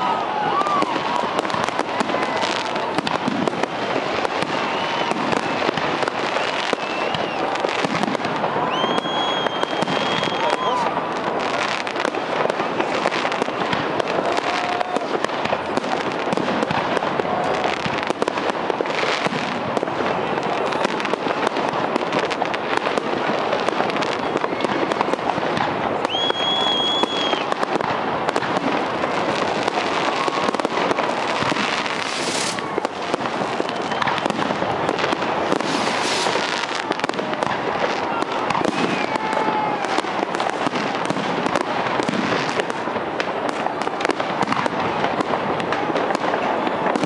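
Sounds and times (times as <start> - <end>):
fireworks crackling and popping: 0.0 - 47.0
high steady whistle: 4.5 - 7.8, 8.6 - 10.9, 26.0 - 27.5, 33.6 - 34.3.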